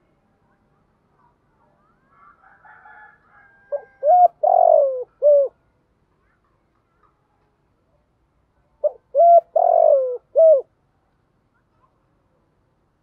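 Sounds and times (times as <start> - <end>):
dove cooing: 3.7 - 5.6, 8.8 - 10.7.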